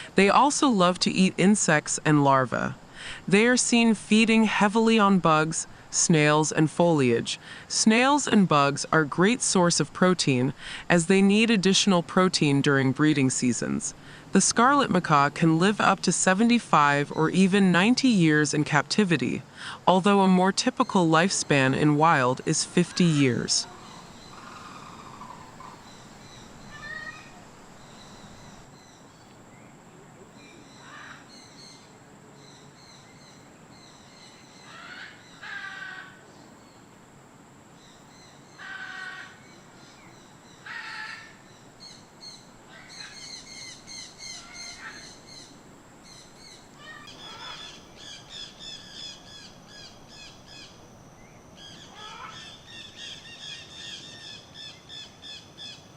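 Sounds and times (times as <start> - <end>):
faint steady high tone: 3.3 - 30.6
birds calling: 20.2 - 36.8, 37.8 - 55.9
rapid bird chirping: 22.5 - 35.4.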